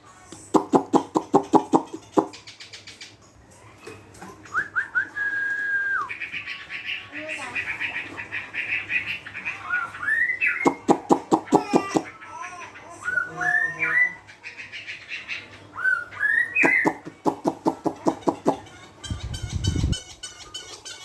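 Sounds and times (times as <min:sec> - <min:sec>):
songbird whistled notes: 0:15.8 - 0:17.1.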